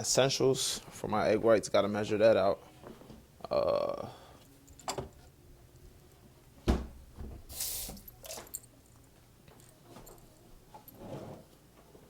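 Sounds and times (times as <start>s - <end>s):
heavy thump of object set down: 6.6s - 7.5s.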